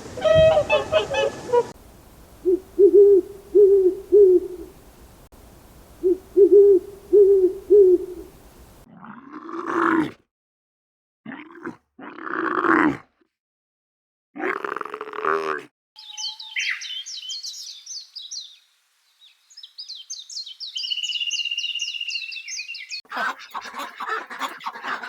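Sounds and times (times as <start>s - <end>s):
rough animal calls: 0.0s - 1.8s
low hoots: 0.0s - 4.8s, 5.7s - 8.8s.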